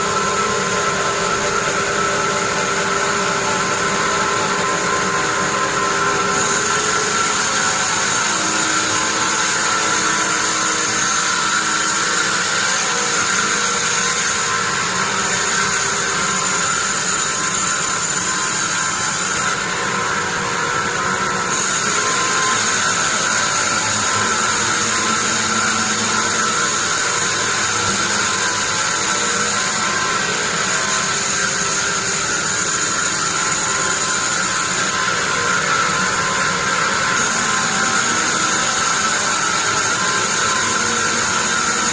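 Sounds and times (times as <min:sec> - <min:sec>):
band saw droning: 0:00.0 - 0:41.9
high saw whine: 0:00.0 - 0:41.9.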